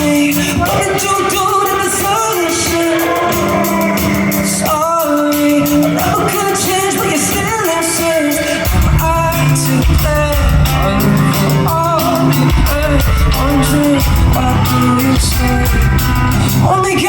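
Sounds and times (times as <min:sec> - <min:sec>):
person singing: 0:00.0 - 0:17.0
pop band playing: 0:00.0 - 0:17.0
heavy bass: 0:08.5 - 0:17.0.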